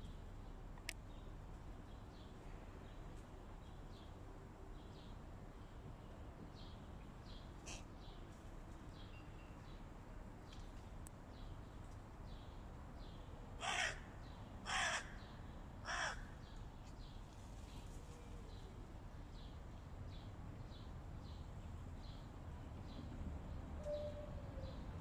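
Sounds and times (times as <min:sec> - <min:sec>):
crow cawing: 0:13.6 - 0:15.2, 0:15.8 - 0:16.3.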